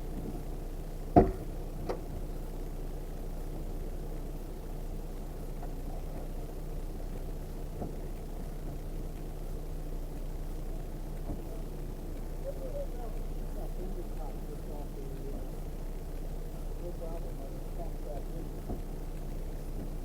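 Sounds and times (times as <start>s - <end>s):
vehicle engine running: 0.0s - 20.0s
sharp knocks: 1.2s - 1.5s.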